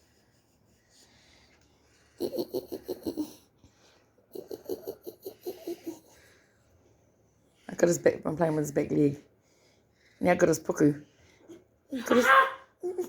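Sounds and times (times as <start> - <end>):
person laughing: 2.2 - 3.4, 4.4 - 6.2.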